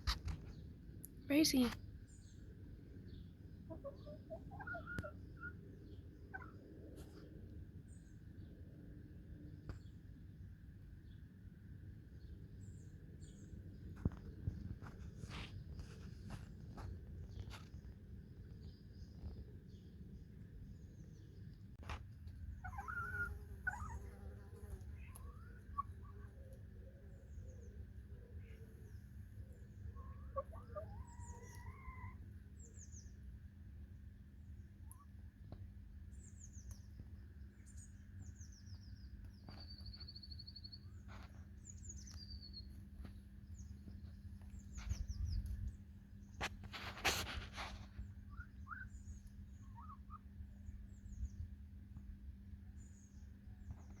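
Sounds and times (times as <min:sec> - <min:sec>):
small birds chirping: 0:00.0 - 0:08.6, 0:12.1 - 0:33.3, 0:34.5 - 0:51.5
hens calling softly: 0:03.6 - 0:05.6, 0:22.6 - 0:26.6, 0:29.8 - 0:32.3.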